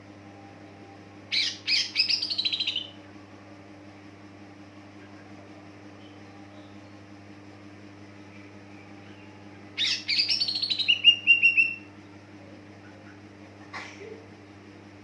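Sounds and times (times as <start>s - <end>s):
steady low hum: 0.0s - 15.0s
bird singing descending notes: 9.8s - 11.8s.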